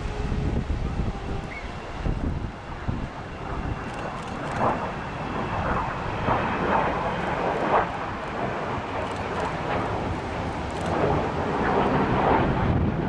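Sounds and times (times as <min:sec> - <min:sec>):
jet engine rumble: 0:00.0 - 0:13.0
wind on microphone: 0:00.0 - 0:13.0.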